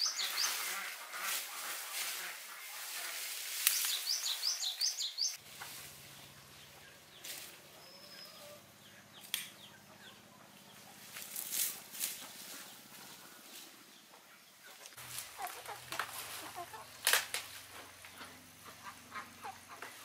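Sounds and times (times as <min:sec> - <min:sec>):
bird chirping: 0:00.0 - 0:00.9, 0:03.6 - 0:15.8
rustle of plants: 0:00.0 - 0:08.4, 0:10.8 - 0:18.4.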